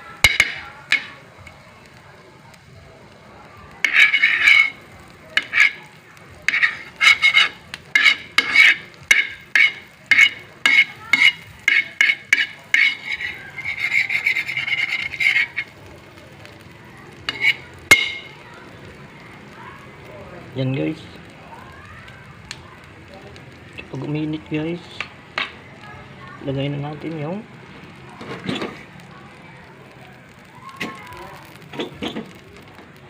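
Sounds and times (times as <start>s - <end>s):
spatula scraping frying pan: 0.2s - 1.2s, 3.8s - 15.8s, 17.2s - 18.4s, 28.2s - 28.9s, 30.8s - 32.4s.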